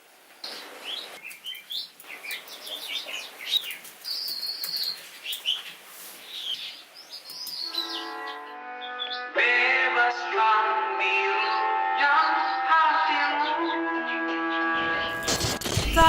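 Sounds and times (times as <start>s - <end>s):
soft steady hiss: 0.0s - 7.6s
small birds chirping: 0.3s - 9.3s
sustained music notes: 7.6s - 15.4s.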